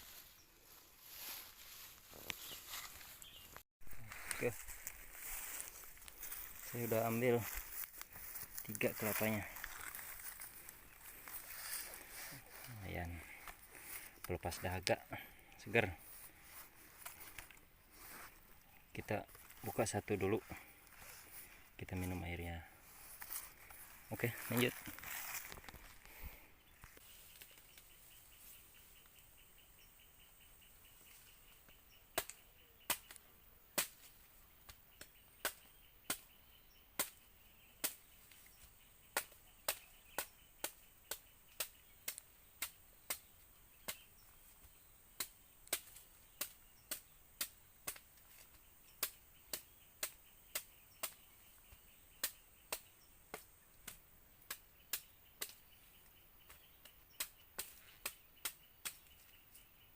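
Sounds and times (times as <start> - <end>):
faint insects buzzing: 0.0 - 59.9
machete chopping coconut husk: 32.1 - 33.2, 33.8 - 34.1, 35.0 - 36.4, 37.0 - 38.1, 39.1 - 44.0, 45.2 - 48.4, 49.0 - 51.3, 52.2 - 55.6, 57.2 - 59.1.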